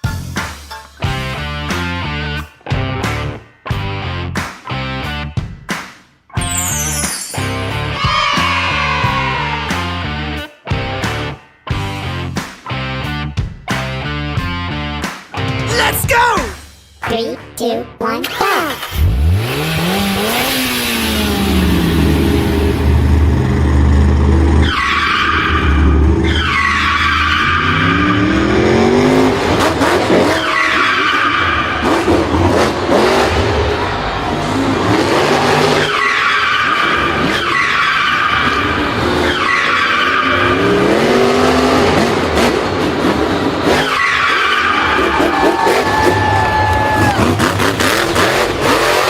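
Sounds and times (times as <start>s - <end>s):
tyres squealing and skidding: 6.4s - 10.2s, 24.3s - 49.0s
race car engine revving: 18.7s - 49.0s.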